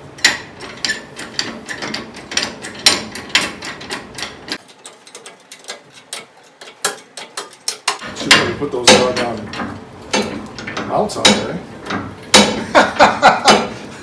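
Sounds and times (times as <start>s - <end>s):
ratchet clicking: 0.2s - 12.6s.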